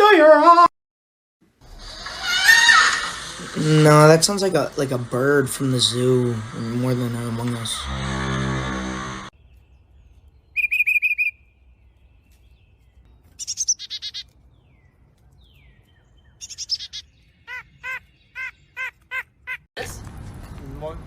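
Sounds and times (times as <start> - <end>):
bird calling separate notes: 10.5 - 12.8, 16.2 - 19.6
bird chattering trills: 10.6 - 11.4, 13.4 - 14.3, 16.3 - 19.6.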